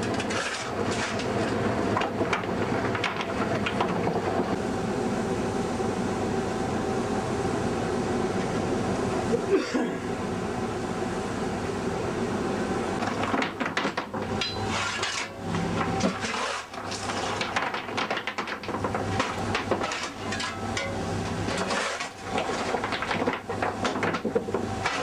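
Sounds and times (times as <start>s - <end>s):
knocks and clanks: 0.0s - 4.5s, 13.0s - 25.0s.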